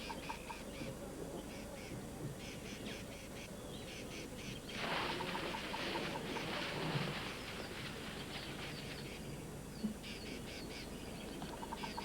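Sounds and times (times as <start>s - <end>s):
tree branches rustling: 4.8s - 9.2s.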